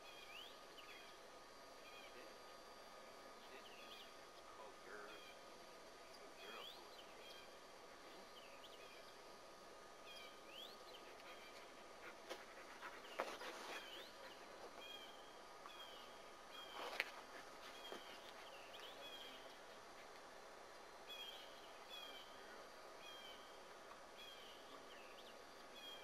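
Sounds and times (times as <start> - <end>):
faint bird chirps: 0.0 - 1.2, 1.8 - 2.8, 3.4 - 9.2, 12.9 - 19.5, 21.0 - 23.6.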